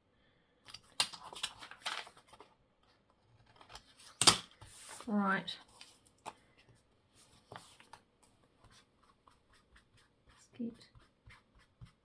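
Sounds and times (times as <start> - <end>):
paper rustling: 0.8 - 8.0
sharp paper snap: 4.1 - 4.6.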